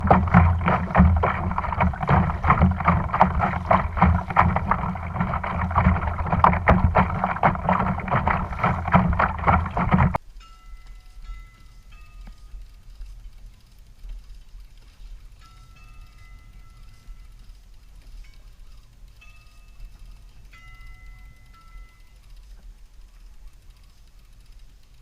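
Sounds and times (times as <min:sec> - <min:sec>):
wind and water noise on microphone: 0:00.0 - 0:10.2.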